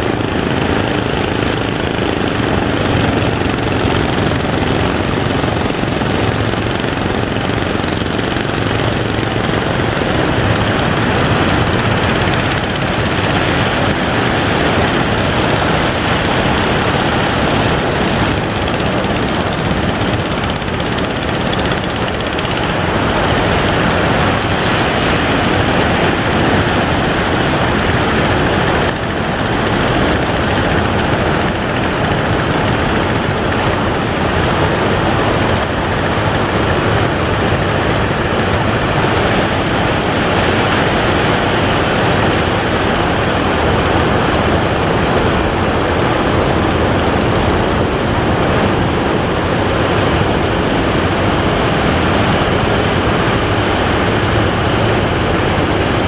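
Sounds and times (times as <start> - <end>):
waves breaking: 0.0 - 56.0.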